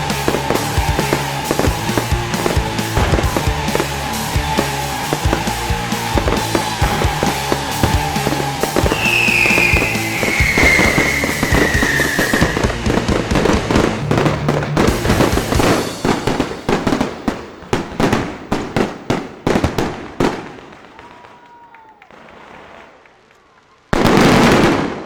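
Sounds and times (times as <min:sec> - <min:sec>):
falling firework whistle: 0:00.0 - 0:17.1
fireworks bangs and crackles: 0:00.0 - 0:25.0.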